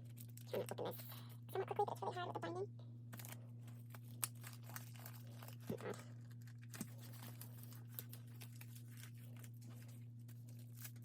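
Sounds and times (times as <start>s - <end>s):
paper and plastic rustling: 3.1s - 11.0s.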